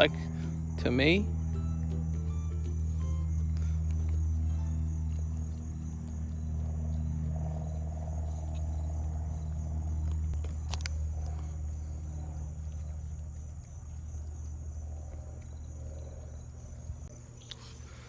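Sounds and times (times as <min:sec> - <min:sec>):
high whine: 0:00.0 - 0:13.2
low machinery hum: 0:00.0 - 0:18.0.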